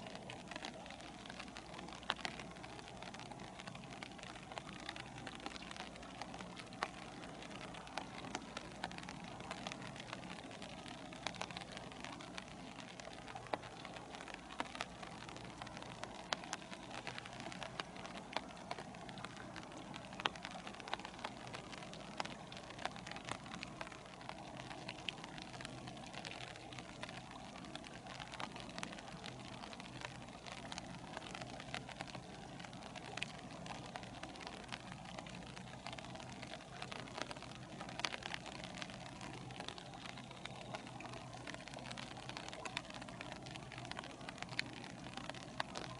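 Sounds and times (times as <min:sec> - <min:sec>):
rain falling: 0:00.0 - 0:45.9
raindrop ticks: 0:00.0 - 0:45.9.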